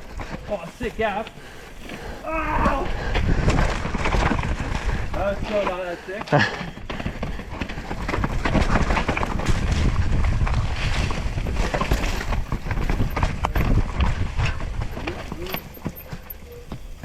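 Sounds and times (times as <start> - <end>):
bike knocking and rattling: 0.0 - 17.0
tyres rumbling over dirt and rocks: 1.8 - 17.0
wind on microphone: 2.3 - 5.6, 7.7 - 15.7.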